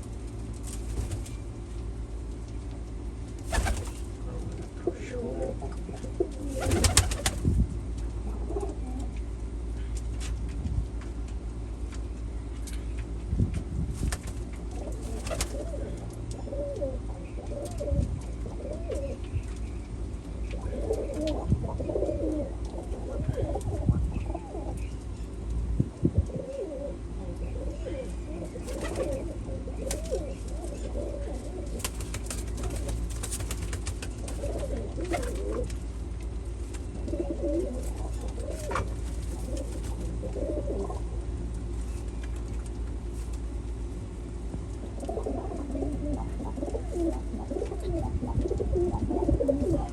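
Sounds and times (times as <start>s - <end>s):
steady low hum: 0.0s - 49.9s
pigeons cooing: 5.0s - 7.5s, 14.7s - 19.3s, 20.5s - 24.9s, 26.2s - 35.8s, 36.9s - 41.2s, 45.0s - 49.9s.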